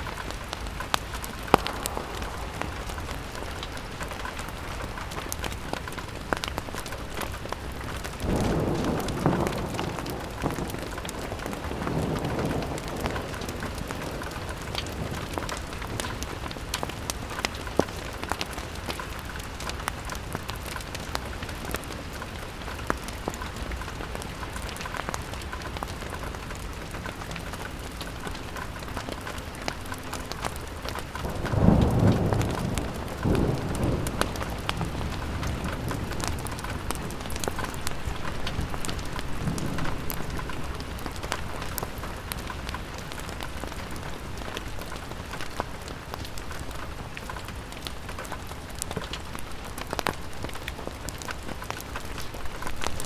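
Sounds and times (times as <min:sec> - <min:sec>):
rain pattering on a window: 0:00.0 - 0:53.0
low rumbles: 0:00.1 - 0:05.8.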